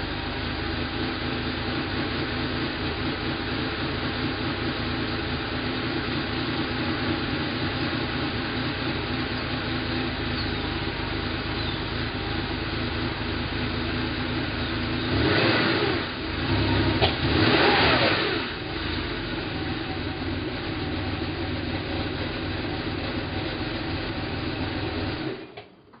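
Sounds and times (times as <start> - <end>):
car engine idling: 0.0 - 25.5
engine throttle blips: 6.5 - 21.2.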